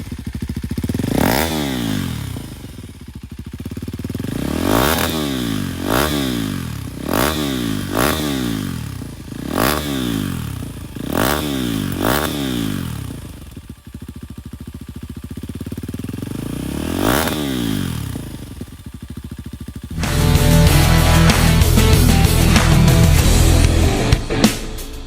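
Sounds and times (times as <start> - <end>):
motorcycle engine revving and idling: 0.0 - 24.1
music: 19.9 - 25.0.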